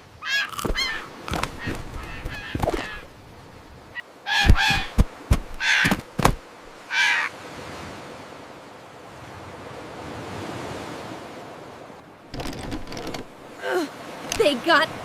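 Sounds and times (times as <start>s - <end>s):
seagulls squawking: 0.2s - 3.1s, 4.0s - 6.0s, 6.8s - 7.3s.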